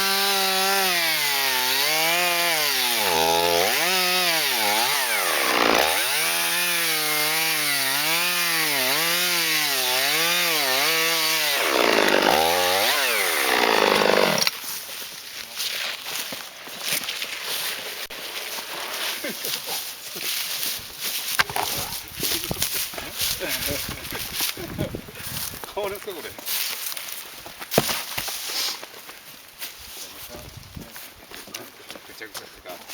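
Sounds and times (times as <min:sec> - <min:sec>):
chainsaw cutting wood: 0:00.0 - 0:14.6.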